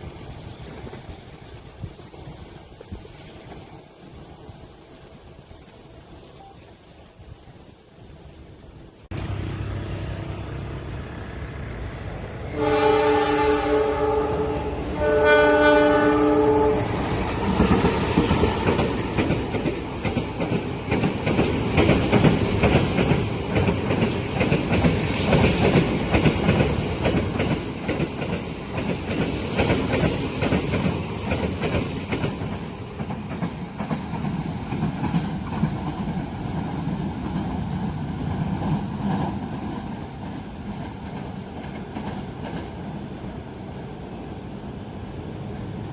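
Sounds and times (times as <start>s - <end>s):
train wheels clattering over rails: 9.1s - 43.3s
train horn blasts: 12.4s - 17.1s.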